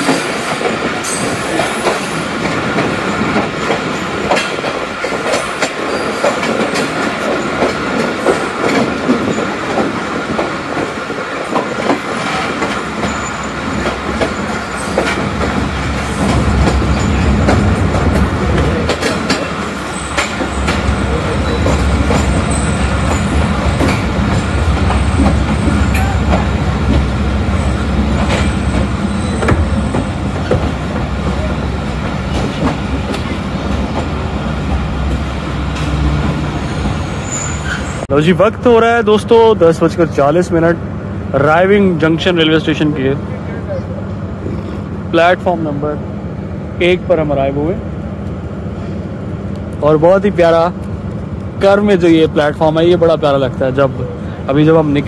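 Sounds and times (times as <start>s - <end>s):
train wheels clattering over rails: 0.0s - 38.1s.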